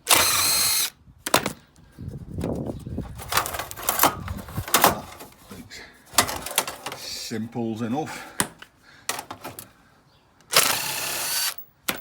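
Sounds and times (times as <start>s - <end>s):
metal clicks and knocks: 3.2s - 5.3s, 6.2s - 7.1s.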